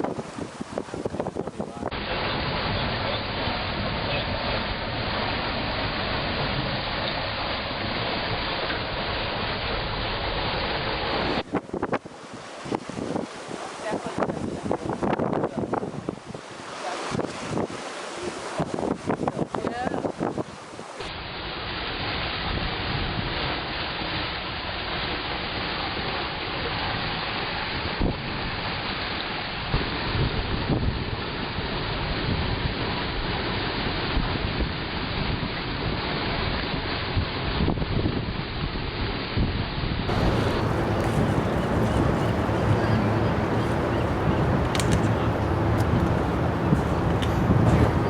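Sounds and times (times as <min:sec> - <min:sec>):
wind buffeting microphone: 0:00.0 - 0:06.6, 0:11.2 - 0:16.5, 0:18.4 - 0:21.1, 0:39.4 - 0:48.0
wind and water rushing: 0:00.0 - 0:48.0.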